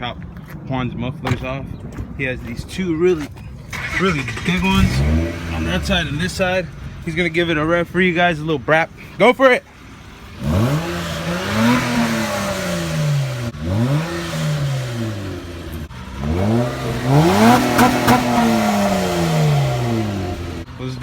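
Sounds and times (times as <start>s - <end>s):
car engine revving: 3.5s - 8.7s, 9.8s - 21.0s.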